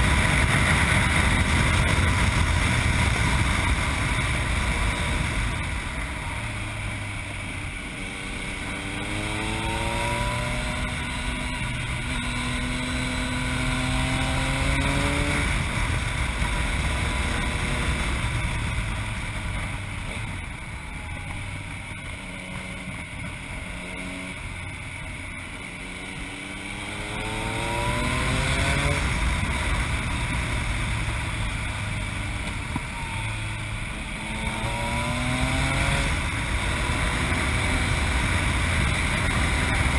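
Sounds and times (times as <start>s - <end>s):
wind noise on microphone: 0.0s - 24.5s
motorcycle engine accelerating: 0.0s - 39.9s.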